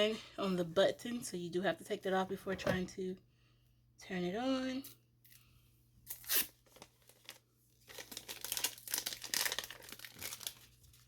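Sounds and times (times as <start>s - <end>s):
plastic film ripping: 6.1s - 11.0s
plastic film crinkling: 6.2s - 11.0s.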